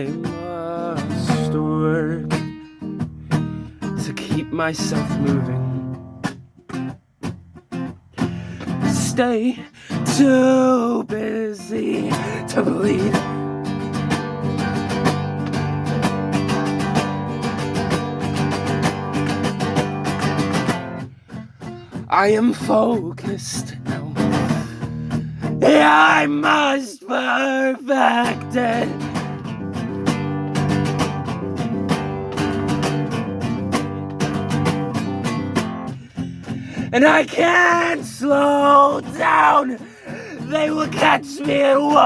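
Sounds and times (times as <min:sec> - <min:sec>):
person singing: 0:00.0 - 0:02.6, 0:04.0 - 0:05.8, 0:08.8 - 0:13.5, 0:22.1 - 0:24.9, 0:25.6 - 0:29.3, 0:36.8 - 0:42.0
guitar strumming chords: 0:00.0 - 0:42.0
guitar playing quick notes: 0:29.0 - 0:36.8.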